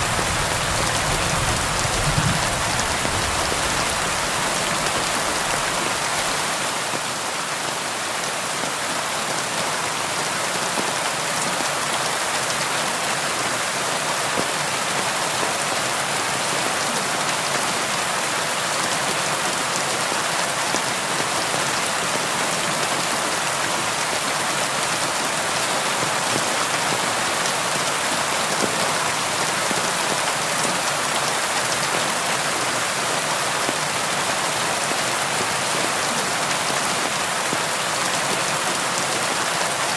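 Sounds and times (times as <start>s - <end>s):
rain on a window: 0.0s - 7.2s.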